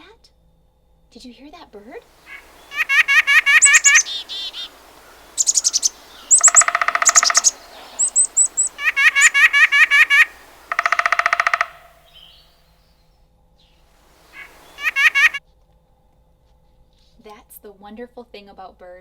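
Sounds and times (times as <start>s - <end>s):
bird trills and chirps: 2.2s - 12.4s, 14.2s - 15.4s.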